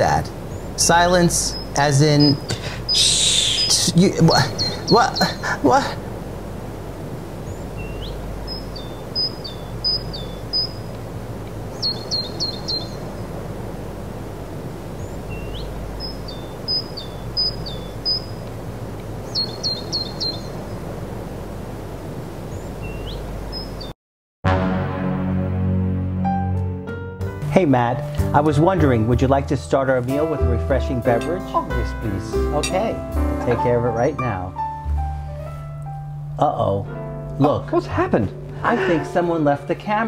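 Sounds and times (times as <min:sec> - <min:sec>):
low outdoor background noise: 0:00.0 - 0:23.9
songbird singing: 0:00.0 - 0:24.0, 0:28.3 - 0:40.0.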